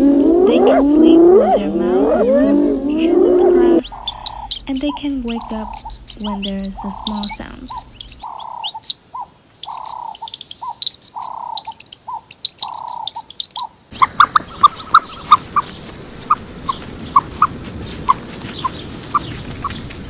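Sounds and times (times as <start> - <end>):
steady high tone: 0.0 - 8.3
birds chirping: 0.0 - 20.0
outdoor background hiss: 0.0 - 20.0.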